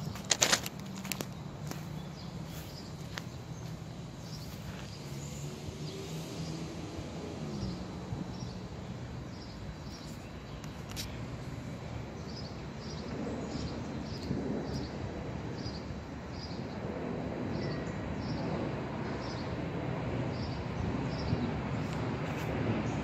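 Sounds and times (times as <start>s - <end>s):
bird chirping: 1.0s - 6.8s, 7.4s - 16.8s, 17.5s - 19.6s.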